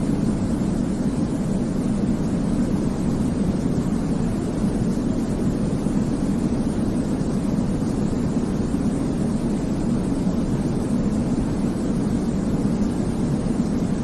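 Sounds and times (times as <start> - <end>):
deep white noise hiss: 0.0 - 14.0.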